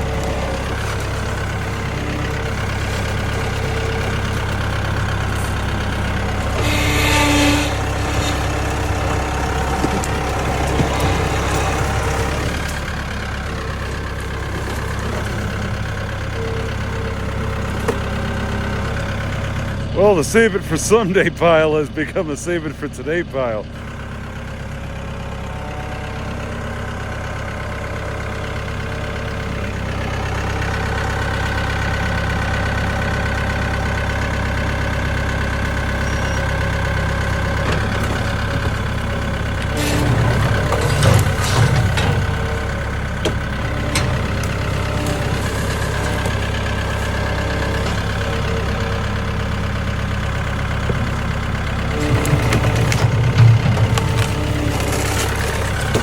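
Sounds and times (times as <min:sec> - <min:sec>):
vehicle engine running: 0:00.0 - 0:56.0
clanks and knocks: 0:06.4 - 0:12.9, 0:39.6 - 0:48.8, 0:50.5 - 0:56.0.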